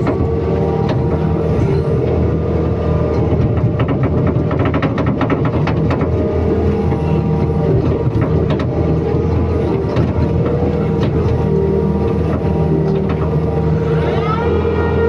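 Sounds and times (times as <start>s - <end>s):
sharp metallic knocks and clanks: 0.0s - 11.5s
excavator diesel engine running: 0.0s - 15.0s.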